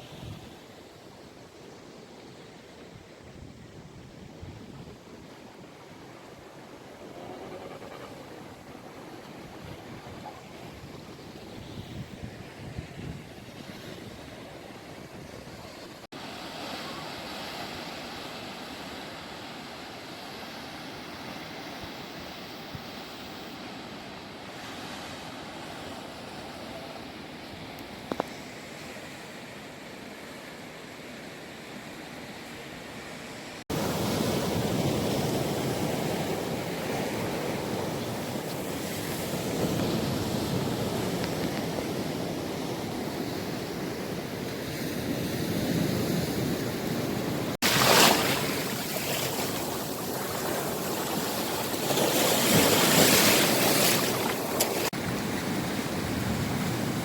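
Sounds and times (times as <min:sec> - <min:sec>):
ocean surf washing on beach: 0:02.2 - 0:57.0
wind on microphone: 0:06.5 - 0:15.7.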